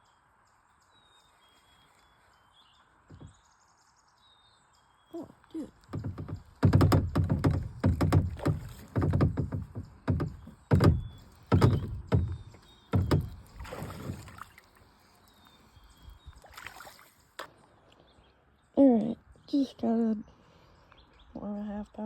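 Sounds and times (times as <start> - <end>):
thumps on kayak hull: 3.1 - 3.4, 5.8 - 14.6
water splashing: 5.2 - 17.8.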